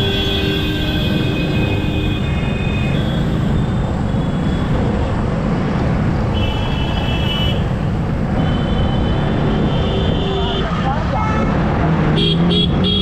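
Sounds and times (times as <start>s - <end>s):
vehicle horns honking: 0.0s - 4.7s, 6.3s - 7.7s, 12.1s - 13.0s
surrounding traffic: 0.0s - 13.0s
wind and road rush: 0.0s - 13.0s.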